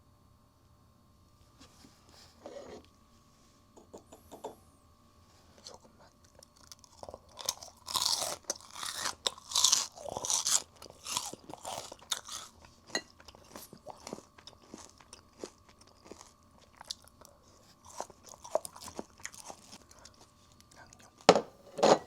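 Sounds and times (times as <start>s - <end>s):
crunching fried chicken: 6.3s - 21.3s.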